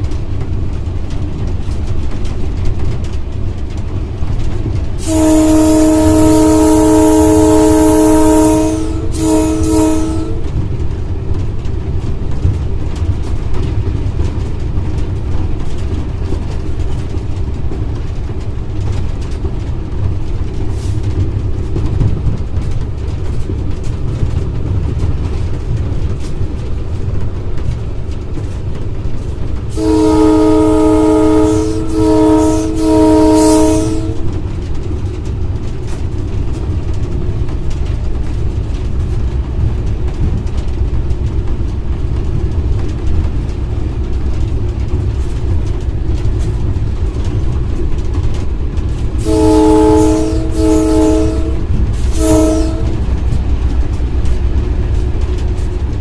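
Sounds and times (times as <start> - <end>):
locomotive engine rumble: 0.0 - 56.0
locomotive air horn blasts: 5.0 - 10.5, 29.7 - 34.3, 49.2 - 53.0.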